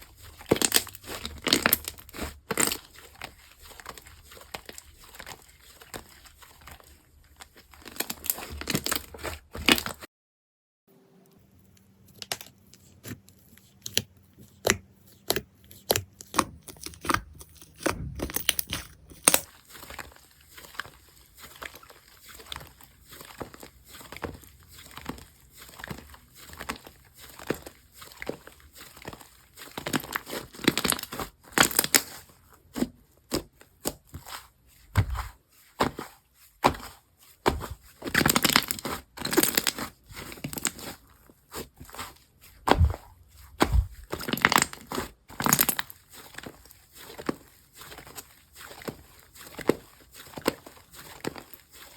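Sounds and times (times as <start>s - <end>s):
slime squished by hand: 36.6s - 45.6s.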